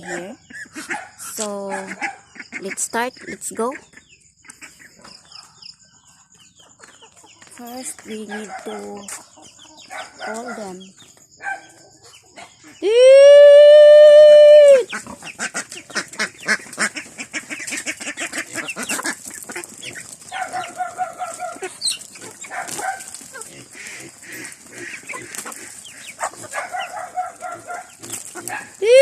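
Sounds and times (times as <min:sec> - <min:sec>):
chickens and ducks clucking: 0:00.0 - 0:12.9, 0:14.8 - 0:29.0
loud nasal bird calls: 0:00.0 - 0:13.1, 0:13.7 - 0:29.0
woman calling out: 0:12.8 - 0:14.9, 0:28.8 - 0:29.0.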